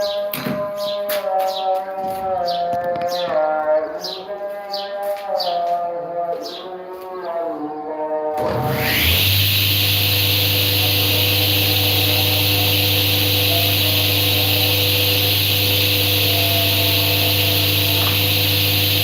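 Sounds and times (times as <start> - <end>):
woodworking machine motor whine: 8.3 - 19.0.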